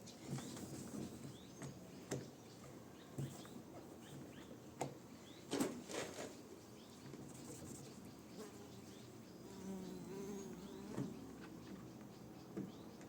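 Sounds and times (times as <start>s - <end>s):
faint birdsong: 0.0s - 13.0s
fly buzzing: 8.4s - 11.5s.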